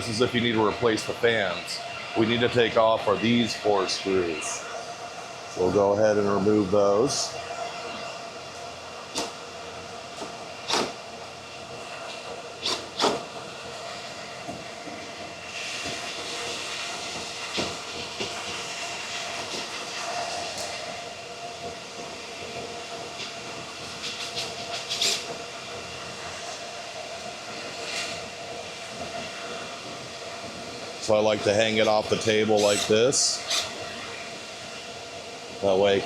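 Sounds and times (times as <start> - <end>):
machine hum with whine: 0.0 - 36.0
hiss: 10.6 - 11.1, 11.7 - 36.0.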